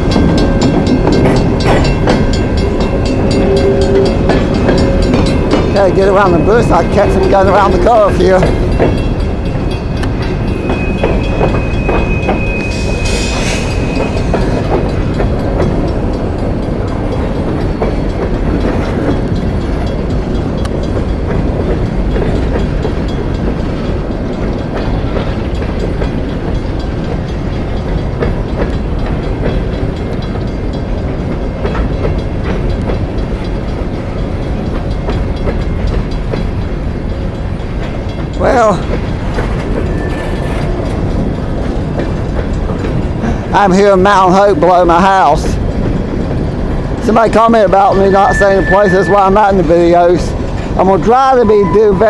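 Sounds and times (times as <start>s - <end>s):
train wheels rumbling on rail: 0.0s - 52.0s
high wheel squeal: 9.0s - 16.2s, 38.4s - 41.4s, 46.8s - 52.0s.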